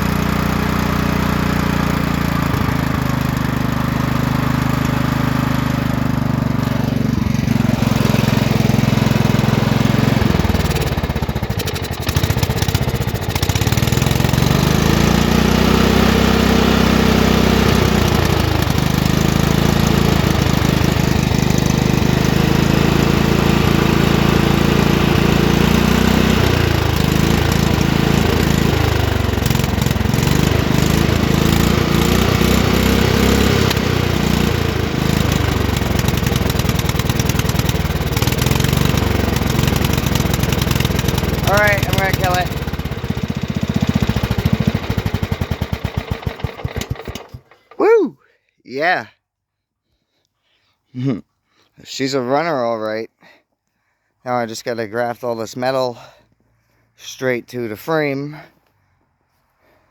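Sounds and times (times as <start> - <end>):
truck engine revving: 0.0 - 43.0.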